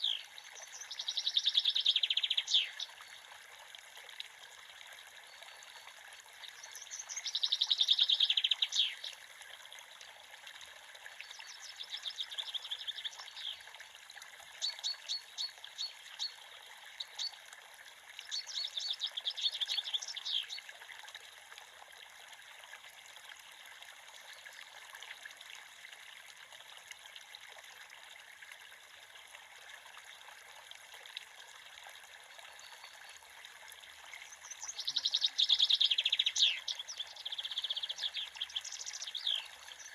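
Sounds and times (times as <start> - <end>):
creek water trickling: 0.0 - 39.9
songbird trilling: 34.6 - 39.9.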